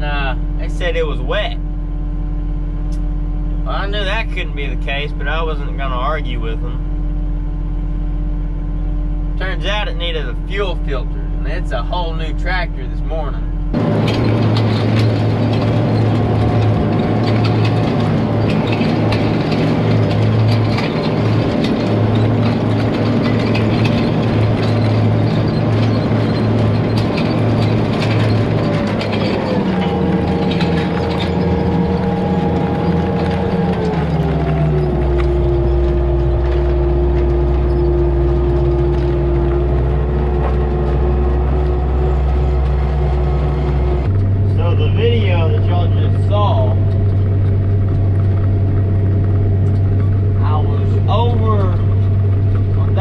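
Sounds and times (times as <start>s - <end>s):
tractor diesel engine running: 0.0s - 53.0s
machinery rattling clicks: 13.7s - 53.0s.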